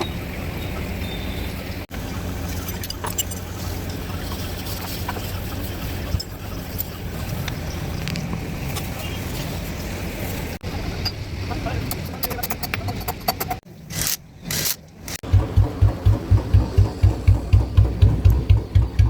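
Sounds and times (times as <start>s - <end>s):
motorcycle engine running: 15.2s - 19.0s.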